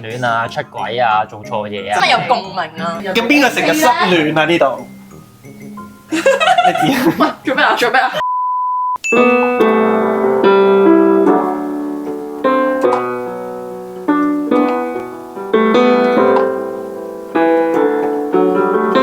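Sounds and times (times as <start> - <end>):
piano playing slow chords: 9.0 - 19.0.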